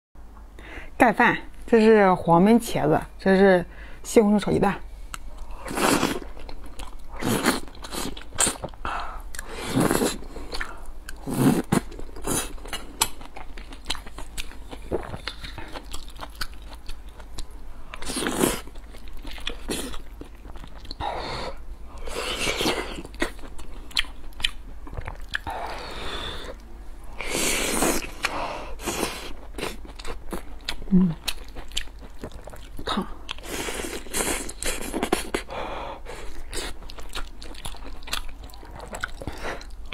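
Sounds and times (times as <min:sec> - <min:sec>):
wet chewing and lip smacking: 0:11.8 - 0:21.0, 0:22.0 - 0:25.5, 0:29.3 - 0:35.5, 0:36.2 - 0:39.9.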